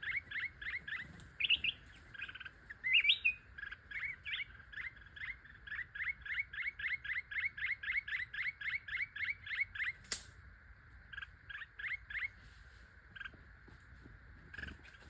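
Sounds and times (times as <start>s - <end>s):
small bird chirping: 0.0s - 13.5s, 14.4s - 15.0s
sharp click: 10.0s - 10.4s.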